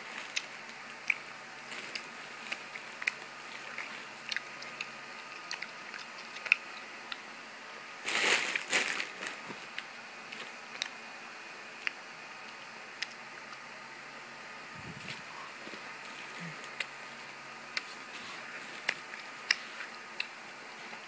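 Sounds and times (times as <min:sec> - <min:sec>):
mouth chewing candy: 0:00.2 - 0:07.3.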